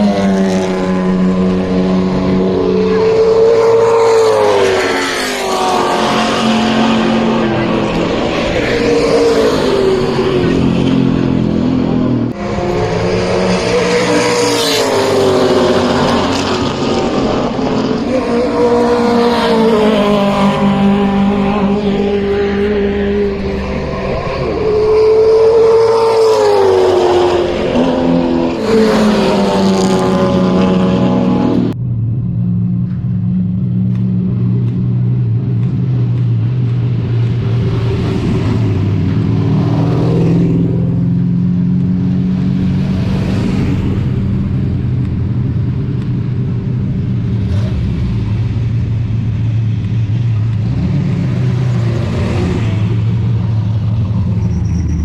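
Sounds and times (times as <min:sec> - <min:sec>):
racing engine accelerating and shifting: 0:00.0 - 0:55.0
lower steady engine note: 0:29.7 - 0:55.0.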